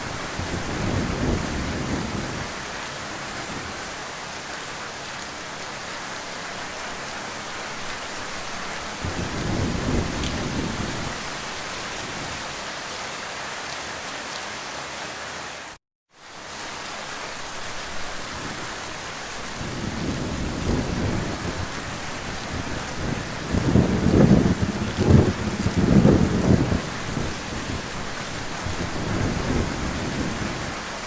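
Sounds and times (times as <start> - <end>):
heavy rain: 0.0 - 31.0
distant thunder rumbles: 8.3 - 12.5, 19.3 - 31.0.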